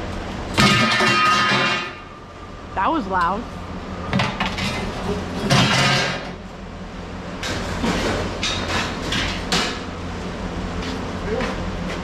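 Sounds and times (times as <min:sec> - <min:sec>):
steady low hum: 0:00.0 - 0:12.0
scrap metal crashing to ground: 0:00.5 - 0:02.1, 0:04.2 - 0:06.4
metal clanks: 0:00.6 - 0:02.0.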